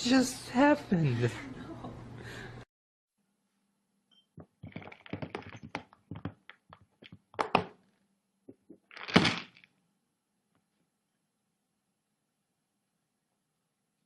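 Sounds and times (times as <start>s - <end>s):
taps and knocks: 4.4s - 7.8s.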